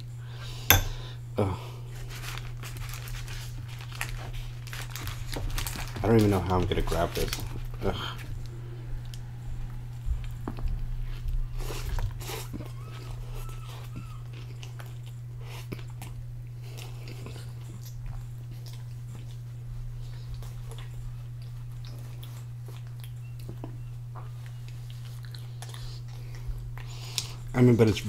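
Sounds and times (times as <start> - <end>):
low steady hum: 0.0 - 28.0
paper napkin rustling: 2.0 - 7.6
person chewing food: 7.5 - 27.5.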